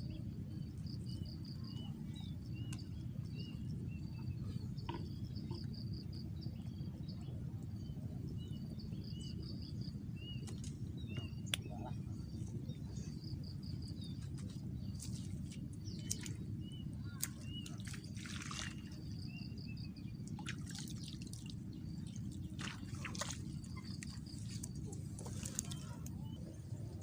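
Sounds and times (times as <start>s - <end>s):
steady low rumble: 0.0s - 27.0s
birds chirping: 0.6s - 27.0s
water drips: 15.0s - 16.4s, 17.2s - 19.0s, 20.2s - 26.1s.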